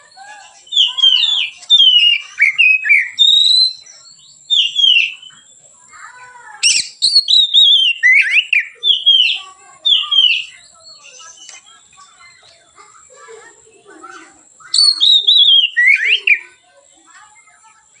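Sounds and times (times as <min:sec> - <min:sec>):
bird singing whistled phrases: 0:00.0 - 0:05.6, 0:06.6 - 0:12.4, 0:14.6 - 0:16.6.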